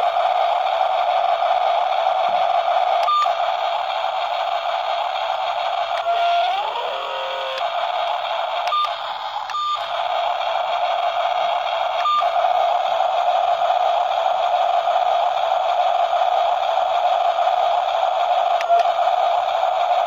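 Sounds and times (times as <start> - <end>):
small electric motor whining: 5.8 - 7.9.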